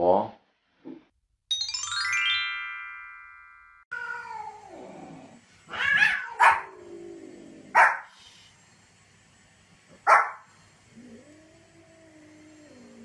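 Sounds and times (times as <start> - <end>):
bright chiming jingle: 1.5 - 3.9
small dog barking: 5.8 - 6.8, 7.7 - 8.1, 10.0 - 10.5.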